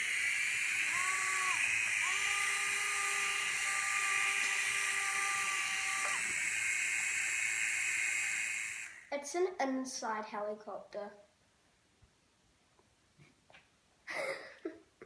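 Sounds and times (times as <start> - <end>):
toy helicopter motor whine: 0.0 - 9.1.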